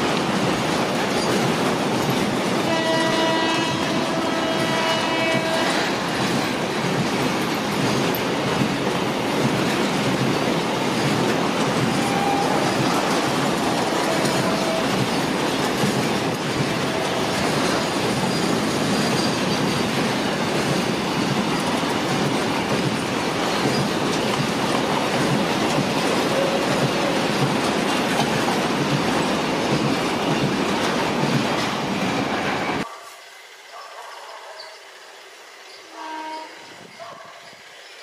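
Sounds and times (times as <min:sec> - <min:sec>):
freight train wheels rumbling on rails: 0:00.0 - 0:32.9.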